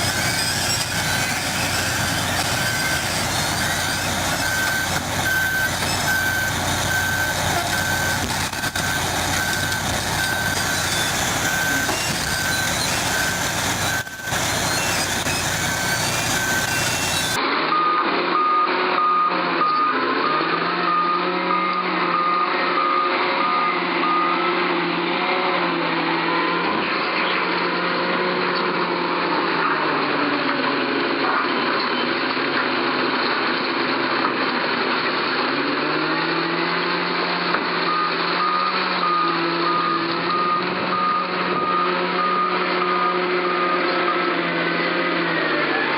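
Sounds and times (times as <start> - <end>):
low-pitched reversing alarm: 0.0 - 25.0, 37.8 - 44.6
reversing alarm beeping: 0.0 - 26.5, 37.7 - 44.8
diesel engine running: 0.0 - 45.9.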